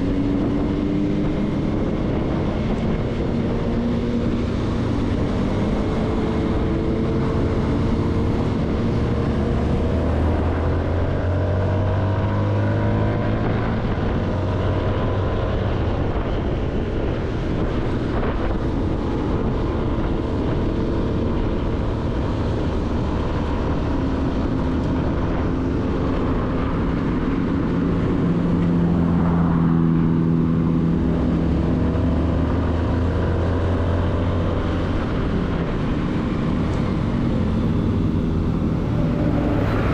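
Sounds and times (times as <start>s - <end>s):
motorcycle engine accelerating: 0.0s - 39.9s
wind and road noise: 0.0s - 39.9s.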